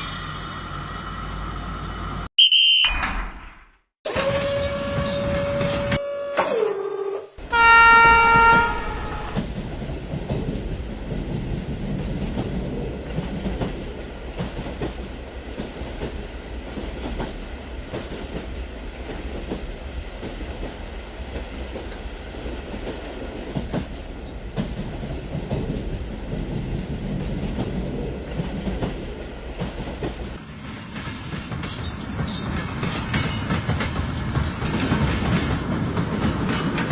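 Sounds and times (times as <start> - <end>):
train horn blast: 7.4 - 9.4
train rumbling: 7.4 - 36.9
wheels clacking over rail joints: 7.4 - 36.9.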